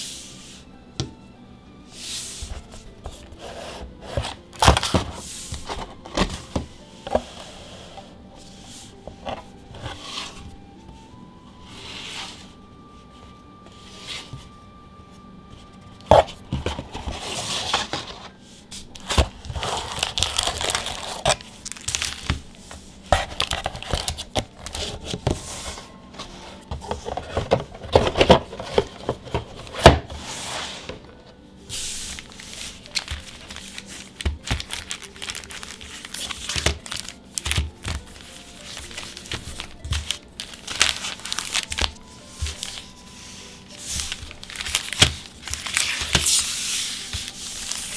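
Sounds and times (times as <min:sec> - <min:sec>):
plastic wrappers tearing and crinkling: 0:04.1 - 0:06.4, 0:18.9 - 0:25.4, 0:32.1 - 0:47.9.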